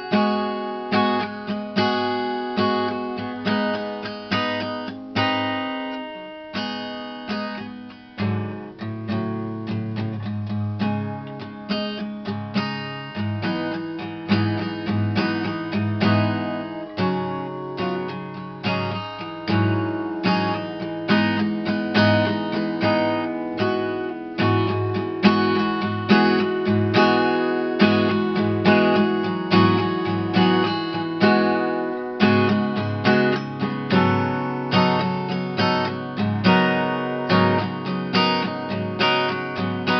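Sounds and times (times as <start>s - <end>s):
acoustic guitar strumming and plucking: 0.0s - 39.9s.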